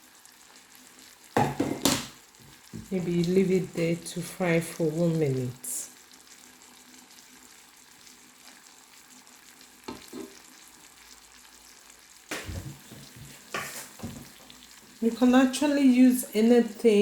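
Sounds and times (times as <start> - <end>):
faint sizzle in a pan: 0.0 - 17.0
utensil knocking against pan: 1.4 - 2.1.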